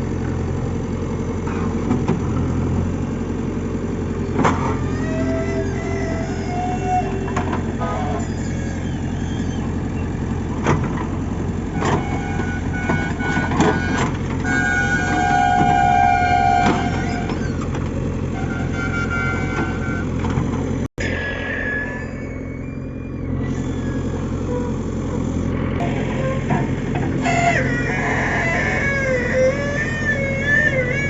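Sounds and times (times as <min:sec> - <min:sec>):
diesel engine running: 0:00.0 - 0:31.0
knocks and clanks: 0:07.3 - 0:07.8, 0:11.8 - 0:18.0.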